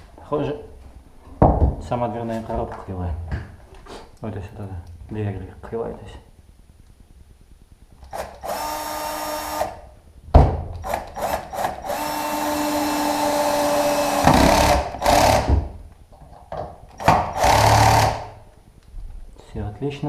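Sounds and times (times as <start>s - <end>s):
drill driving screws into wood: 8.1s - 9.8s, 10.8s - 15.7s, 16.9s - 18.4s.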